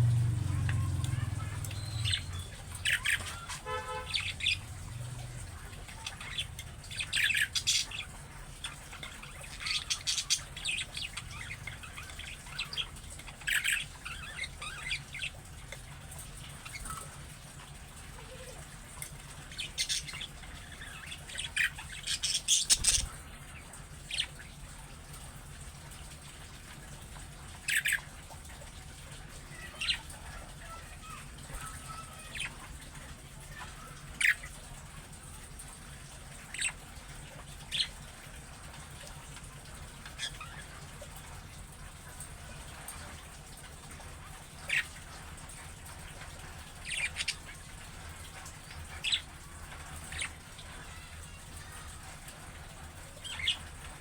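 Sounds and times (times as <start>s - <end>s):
budgerigars chirping: 0.7s - 4.7s, 5.9s - 15.4s, 19.4s - 23.2s, 46.8s - 47.6s, 48.9s - 49.3s, 53.2s - 53.7s.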